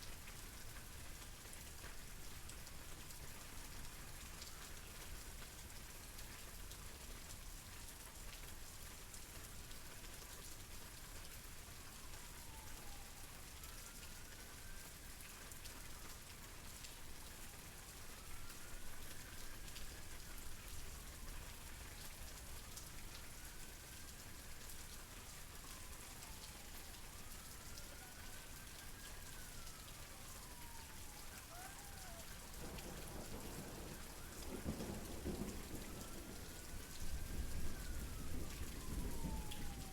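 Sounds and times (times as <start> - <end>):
thunder rumbling: 32.6 - 39.9.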